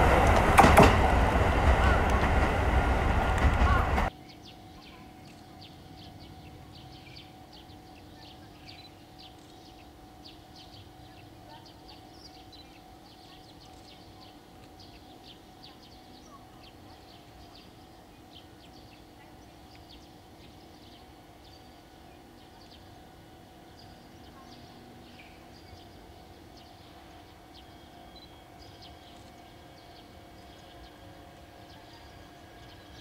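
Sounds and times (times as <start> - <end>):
small birds chirping: 2.0 - 33.0.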